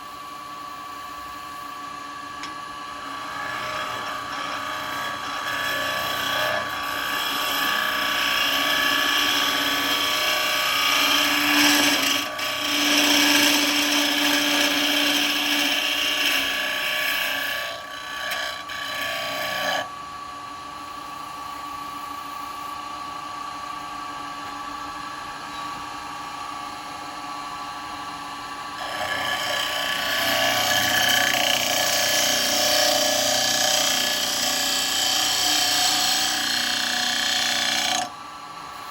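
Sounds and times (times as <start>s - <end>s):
lathe motor hum: 2.4s - 19.9s, 28.6s - 38.8s
gouge cutting wood: 3.1s - 19.8s, 28.8s - 38.1s.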